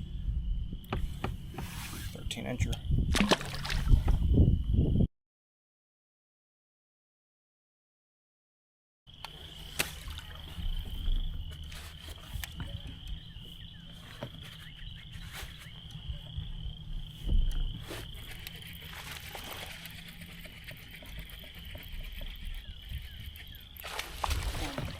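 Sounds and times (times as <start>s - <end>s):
high-pitched insect drone: 9.2s - 24.9s
low thumps: 16.0s - 18.2s.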